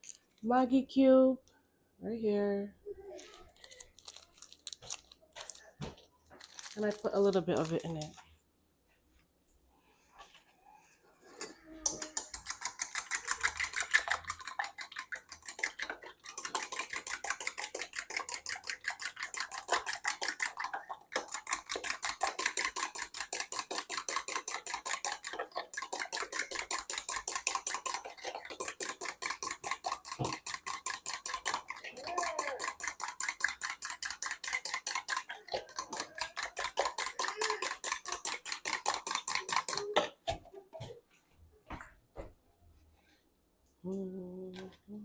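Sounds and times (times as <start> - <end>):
utensil beating eggs in bowl: 3.2 - 8.2, 11.6 - 41.0.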